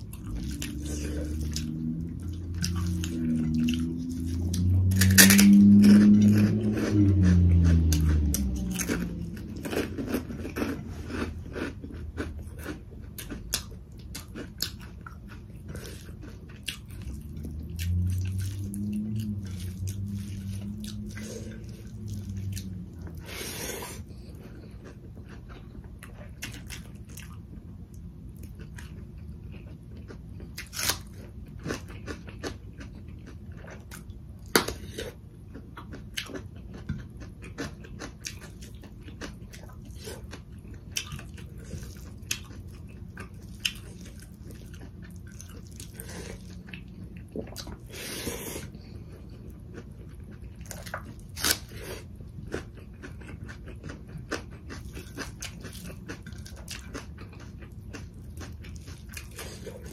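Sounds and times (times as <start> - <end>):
low hum: 0.0 - 13.0, 14.8 - 30.2
chewing and wet mouth sounds: 0.0 - 59.9.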